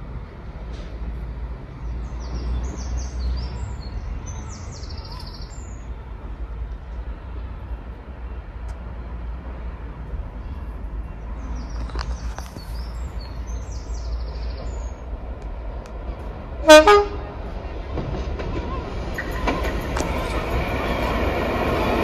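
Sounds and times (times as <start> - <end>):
small birds chirping and singing: 1.8 - 5.9, 10.6 - 15.1.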